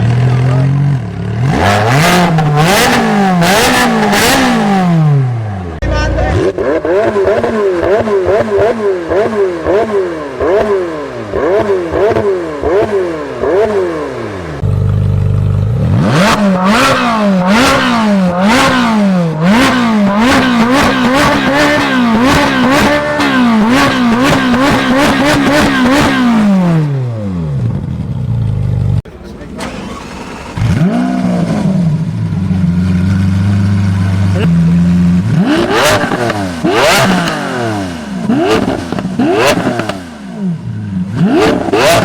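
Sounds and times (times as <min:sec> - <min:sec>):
car engines revving: 0:00.0 - 0:27.9, 0:28.5 - 0:42.0
engine idling low: 0:27.6 - 0:35.3.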